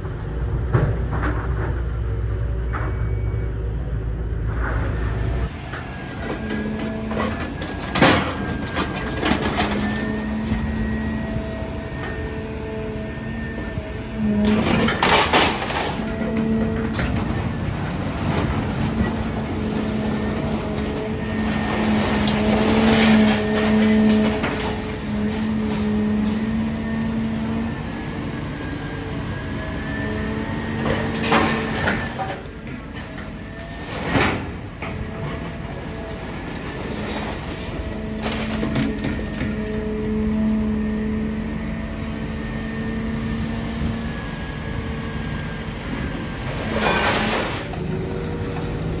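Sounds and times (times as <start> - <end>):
hydraulics whining: 0.0 - 49.0
metal crunching and clattering: 5.8 - 10.8, 14.4 - 28.1, 46.6 - 49.0
scrap metal clanking: 14.4 - 27.2, 46.6 - 48.0.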